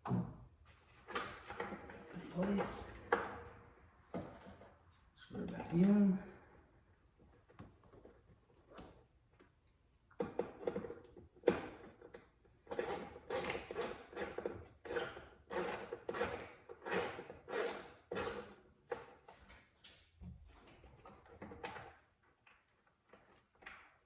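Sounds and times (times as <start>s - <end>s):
hand ratchet rasping: 12.7s - 18.6s.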